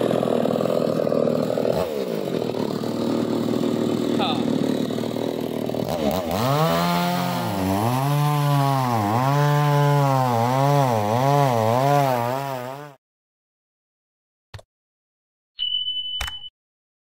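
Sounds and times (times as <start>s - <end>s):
chainsaw revving: 0.0s - 13.0s.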